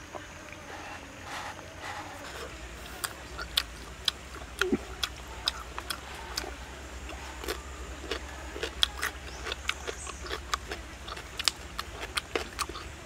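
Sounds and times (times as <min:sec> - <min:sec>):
crispy food crunching: 0:00.0 - 0:13.0.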